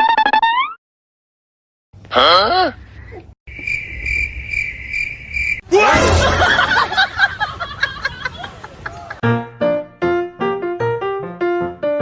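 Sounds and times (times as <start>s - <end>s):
cricket-like chirring: 3.5s - 5.6s
laughter: 6.1s - 9.2s.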